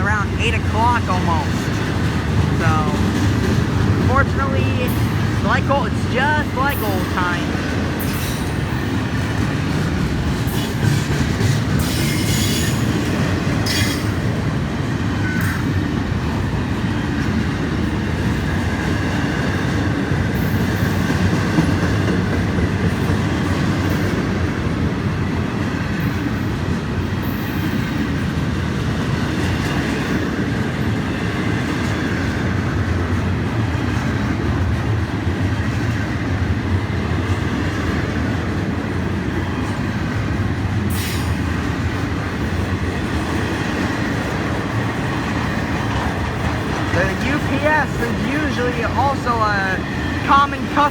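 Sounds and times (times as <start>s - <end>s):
freight train wheels rumbling on rail: 0.0s - 50.9s.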